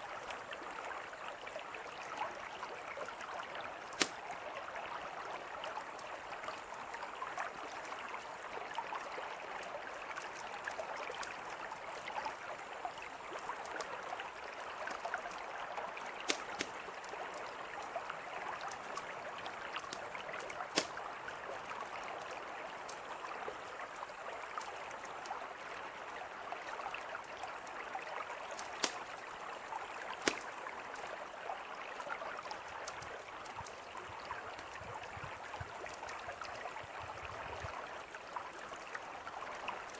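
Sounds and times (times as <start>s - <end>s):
mountain river flowing: 0.0s - 39.9s
campfire crackling and popping: 3.9s - 4.3s, 16.0s - 17.8s, 18.6s - 21.5s, 28.4s - 31.1s, 32.8s - 33.7s.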